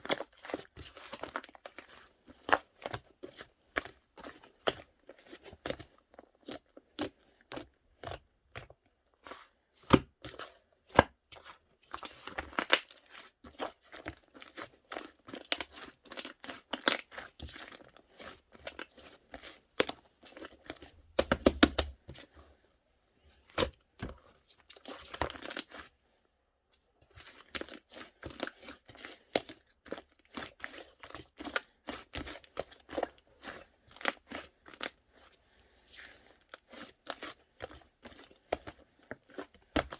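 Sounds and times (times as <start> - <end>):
slime popping and crackling: 21.2 - 22.0.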